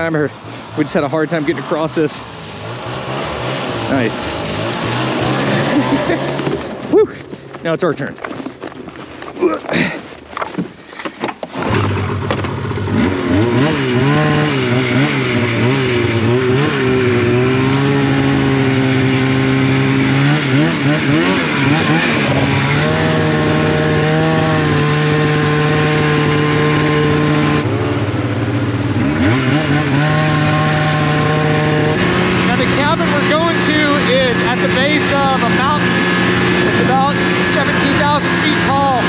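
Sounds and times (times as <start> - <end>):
snowmobile engine revving: 0.0 - 8.6, 10.9 - 39.0.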